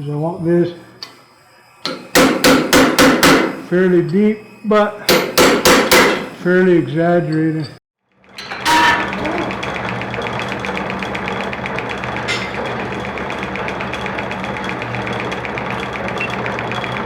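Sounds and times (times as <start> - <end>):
shop machine motor humming: 8.2 - 17.0.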